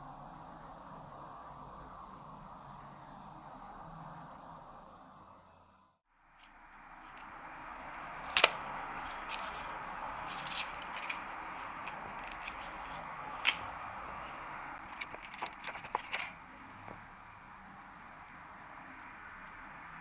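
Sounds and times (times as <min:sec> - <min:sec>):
packaging hiss: 0:06.4 - 0:14.2.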